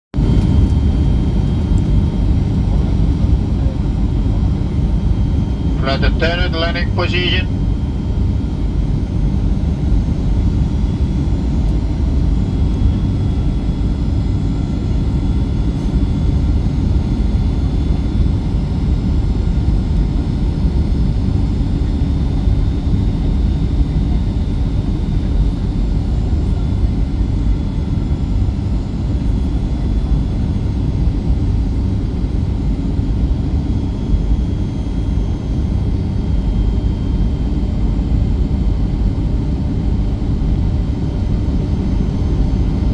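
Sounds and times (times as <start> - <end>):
airplane cabin rumble: 0.2 - 34.2
faint engine tones: 1.4 - 8.3.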